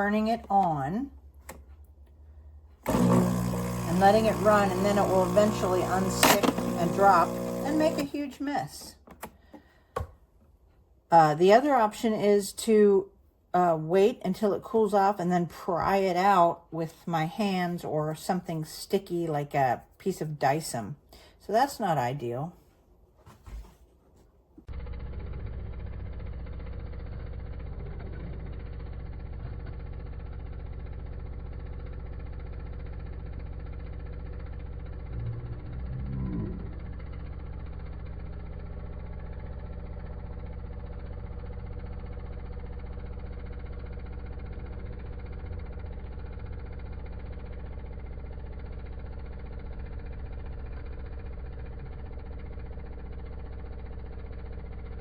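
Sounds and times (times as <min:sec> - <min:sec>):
espresso machine pump buzzing: 0:02.8 - 0:08.4, 0:24.7 - 0:55.0.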